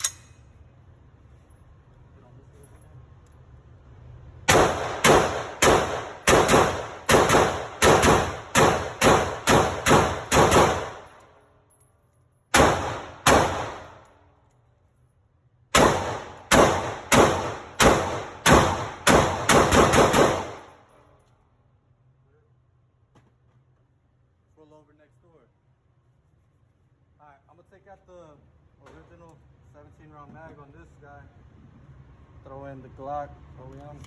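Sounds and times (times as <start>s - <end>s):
pistol gunshots: 4.5s - 11.2s, 12.5s - 14.1s, 15.7s - 20.8s.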